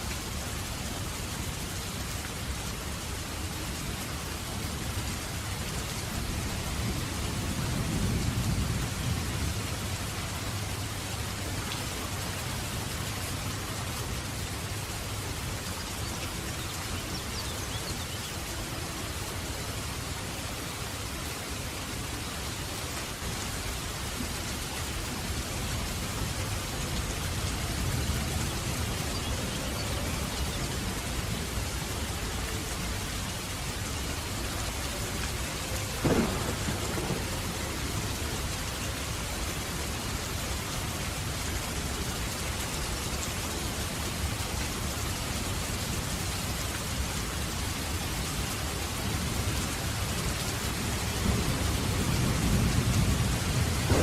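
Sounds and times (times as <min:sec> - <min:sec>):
steady rain: 0:00.0 - 0:54.0
sharp thunder crack: 0:36.0 - 0:37.4
low rolling thunder: 0:36.0 - 0:38.2, 0:51.2 - 0:54.0.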